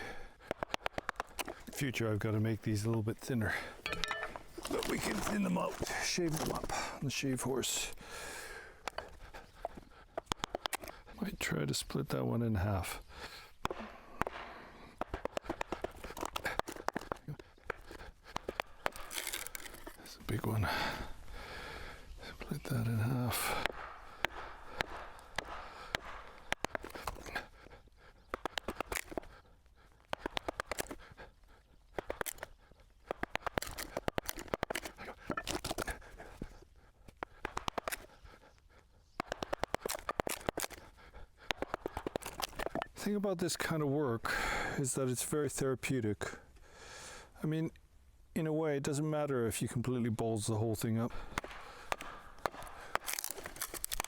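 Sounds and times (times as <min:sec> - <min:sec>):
sharp wood crack: 0:00.0 - 0:01.8, 0:08.1 - 0:11.1, 0:13.2 - 0:20.1, 0:23.1 - 0:29.4, 0:30.0 - 0:31.2, 0:31.9 - 0:38.5, 0:39.2 - 0:43.0, 0:51.1 - 0:54.0
wood splitting and crackling: 0:00.0 - 0:11.1, 0:13.2 - 0:20.6, 0:22.5 - 0:31.3, 0:31.9 - 0:38.5, 0:39.2 - 0:43.1, 0:51.1 - 0:54.0.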